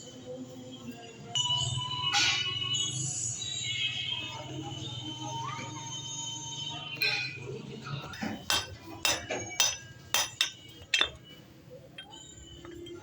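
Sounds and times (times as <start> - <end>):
metal tools clinking: 8.1 - 13.0.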